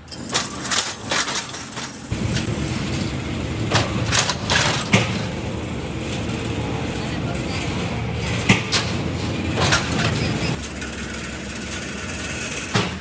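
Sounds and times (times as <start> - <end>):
motor running with low rumble: 2.1 - 12.8
sharp clicks and knocks: 3.6 - 6.7.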